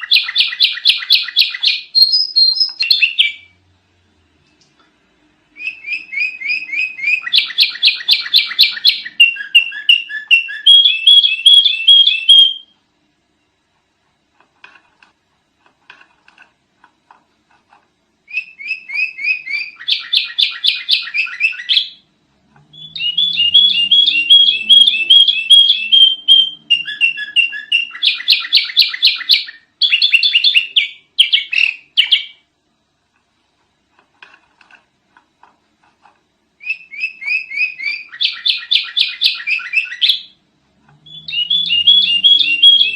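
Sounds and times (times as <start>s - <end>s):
bird rapid chirping song: 0.0s - 3.6s, 5.6s - 12.7s, 18.3s - 22.1s, 22.7s - 32.4s, 36.6s - 40.4s, 41.0s - 42.9s.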